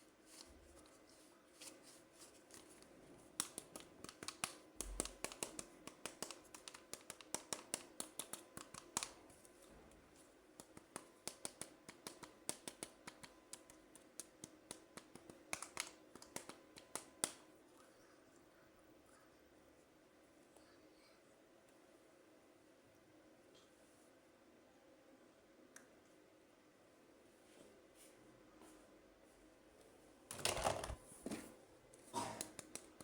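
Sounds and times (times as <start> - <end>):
packaging clicks and crackles: 3.4 - 9.2.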